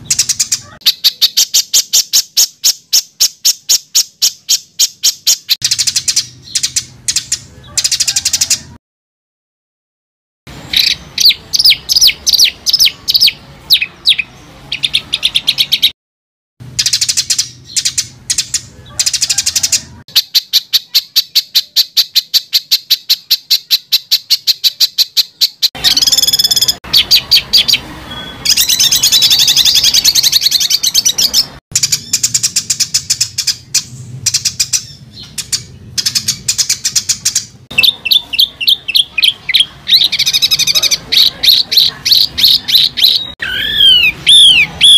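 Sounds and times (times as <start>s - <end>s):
songbird singing harsh notes: 0.0s - 8.8s, 10.5s - 16.0s, 16.7s - 44.9s.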